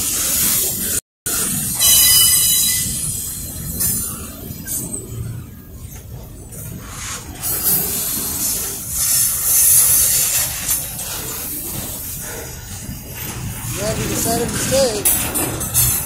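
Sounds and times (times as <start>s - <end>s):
freight train wheels hissing on rail: 0.0s - 4.9s, 6.8s - 16.0s
low train rumble: 0.0s - 16.0s.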